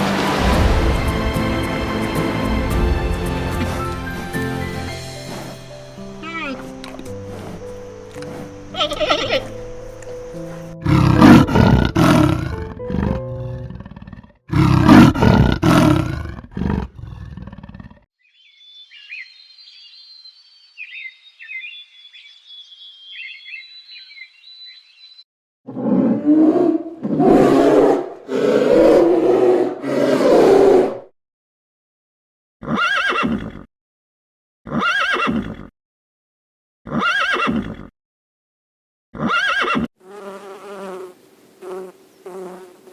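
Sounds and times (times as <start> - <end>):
large animal roaring: 10.8 - 18.0, 25.7 - 31.1.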